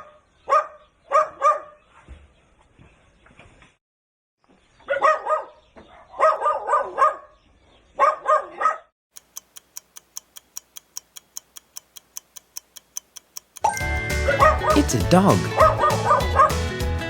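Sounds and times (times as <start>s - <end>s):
dog barking: 0.0s - 1.8s, 4.8s - 7.4s, 8.0s - 8.9s, 14.3s - 14.9s, 15.5s - 16.6s
clock ticking: 9.1s - 13.8s.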